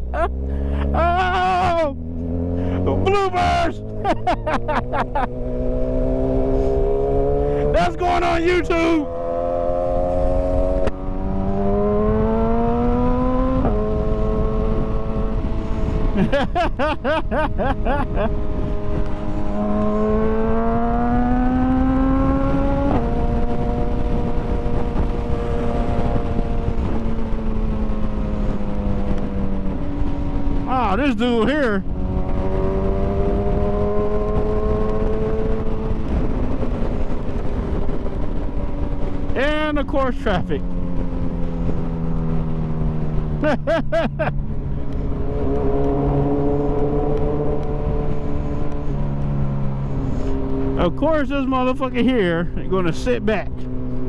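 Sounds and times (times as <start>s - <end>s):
motorcycle engine revving: 0.0s - 16.4s, 17.0s - 54.0s
wind rush: 0.0s - 54.0s.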